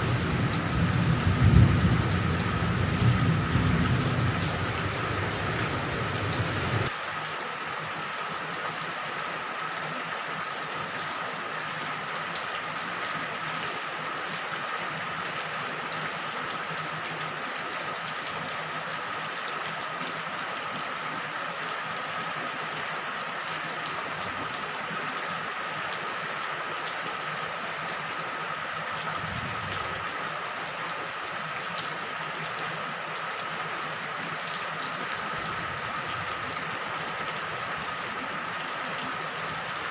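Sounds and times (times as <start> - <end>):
thunder rumble: 0.0 - 6.9
rain falling: 0.0 - 39.9.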